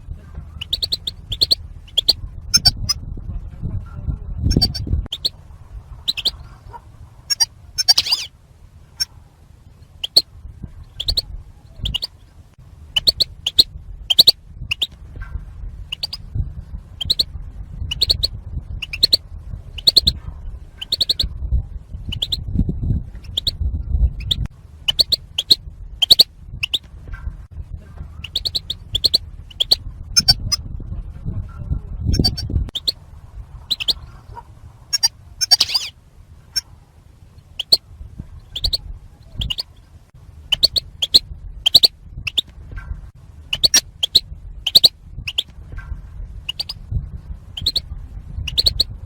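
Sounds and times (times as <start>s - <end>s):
low rumble: 0.0s - 49.0s
goldfinch chirps: 0.6s - 3.0s, 4.5s - 8.3s, 9.8s - 10.3s, 10.9s - 12.2s, 12.9s - 15.0s, 15.9s - 16.3s, 17.0s - 20.2s, 20.8s - 21.3s, 22.0s - 22.5s, 23.2s - 23.6s, 24.2s - 26.9s, 28.2s - 30.6s, 32.1s - 33.0s, 33.6s - 36.7s, 37.4s - 37.8s, 38.4s - 39.9s, 40.5s - 42.5s, 43.5s - 45.5s, 46.4s - 46.9s, 47.5s - 48.9s.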